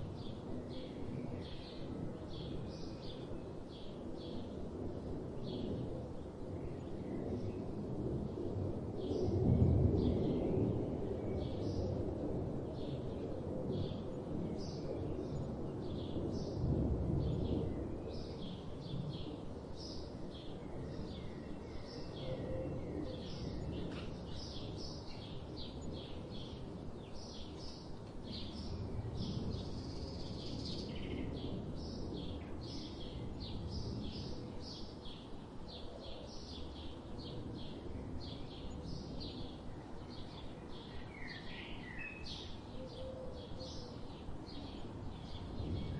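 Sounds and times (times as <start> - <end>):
small birds chirping: 23.2 - 42.6.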